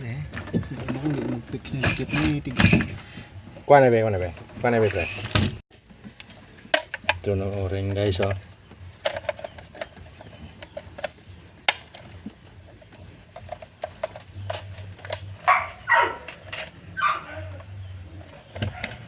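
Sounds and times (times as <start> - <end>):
dog barking: 15.4 - 16.3, 17.0 - 17.6.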